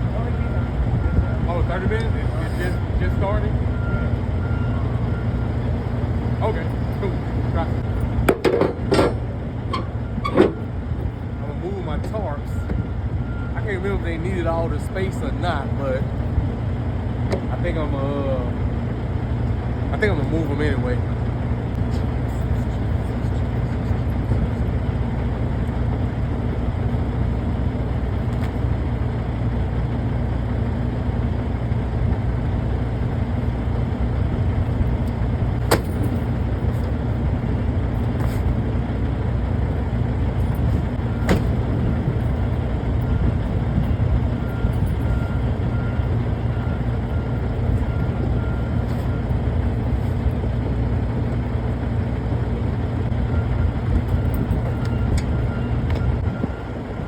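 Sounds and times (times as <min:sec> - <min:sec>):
diesel truck engine idling: 0:00.0 - 0:57.0
sharp knocks: 0:08.2 - 0:09.3.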